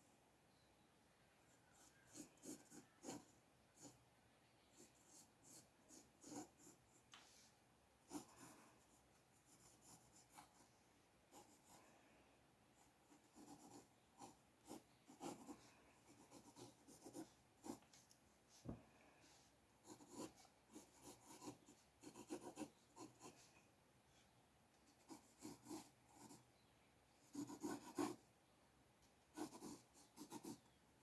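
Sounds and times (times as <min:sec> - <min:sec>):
pencil scratching on paper: 0:01.6 - 0:04.0, 0:04.7 - 0:11.8, 0:12.8 - 0:18.0, 0:19.2 - 0:23.6, 0:24.9 - 0:26.5, 0:27.2 - 0:28.2, 0:29.3 - 0:30.7.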